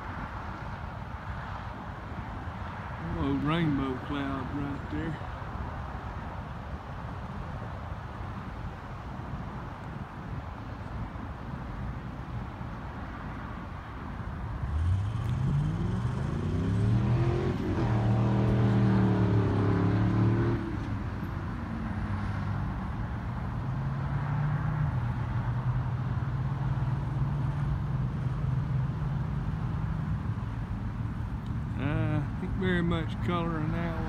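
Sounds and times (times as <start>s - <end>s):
vehicle engine revving and running: 14.7s - 20.9s.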